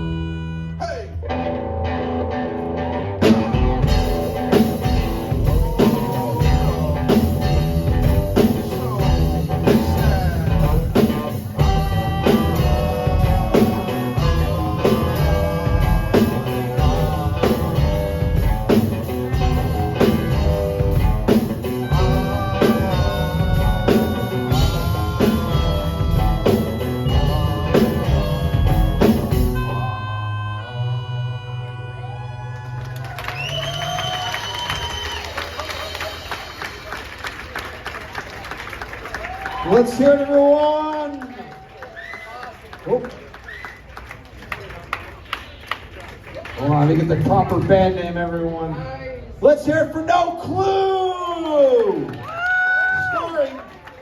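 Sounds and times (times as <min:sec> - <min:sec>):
electric guitar: 0:00.0 - 0:33.4
drum kit: 0:03.2 - 0:30.0.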